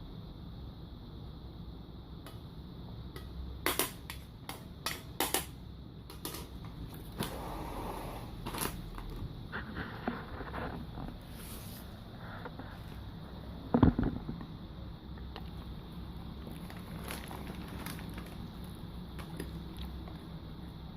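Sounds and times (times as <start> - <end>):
dogs crunching a snack: 16.4 - 20.3.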